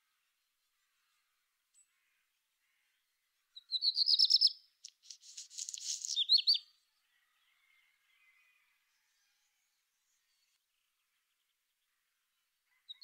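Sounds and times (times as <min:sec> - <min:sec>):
songbird singing: 0:02.8 - 0:08.6.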